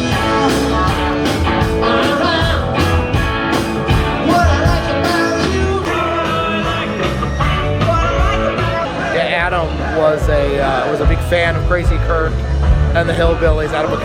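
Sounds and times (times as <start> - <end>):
guitars: 0.0 - 14.0
steady drum beat: 0.0 - 14.0
singing: 4.2 - 10.6.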